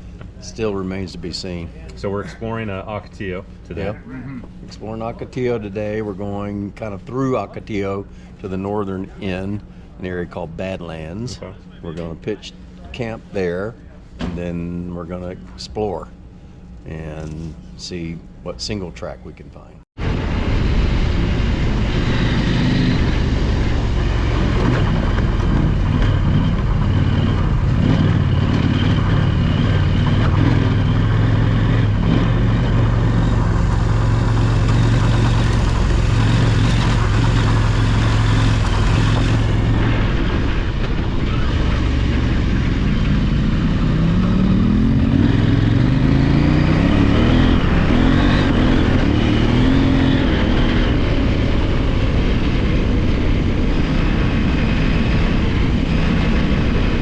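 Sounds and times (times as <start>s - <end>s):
motorcycle engine revving: 20.1s - 57.0s.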